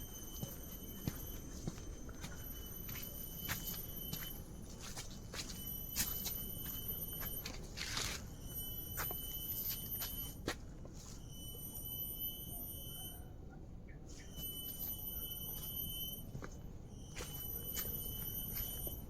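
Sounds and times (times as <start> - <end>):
footsteps on a trail: 0.3 - 11.2, 16.3 - 19.0.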